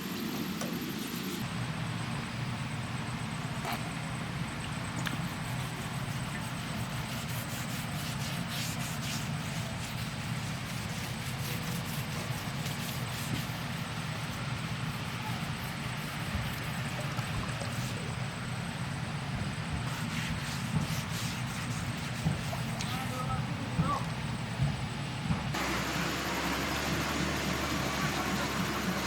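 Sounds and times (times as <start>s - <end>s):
diesel engine rumble: 23.1s - 29.0s
water noise: 25.6s - 29.0s.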